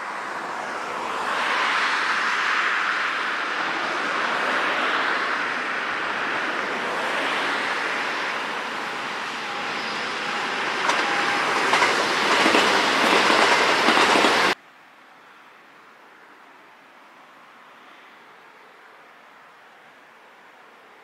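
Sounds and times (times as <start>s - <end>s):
electric train passing: 0.0s - 14.6s.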